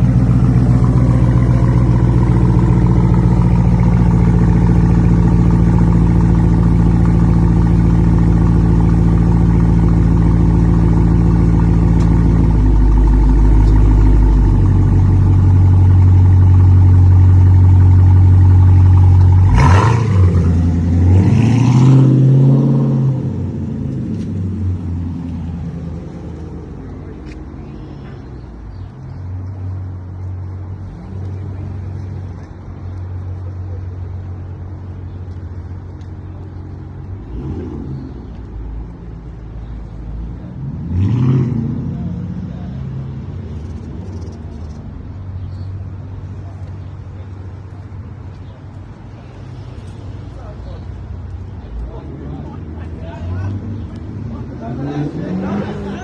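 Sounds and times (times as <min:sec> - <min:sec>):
car engine deep drone: 0:00.0 - 0:56.0
engine revving hard: 0:19.4 - 0:23.2, 0:40.6 - 0:42.1.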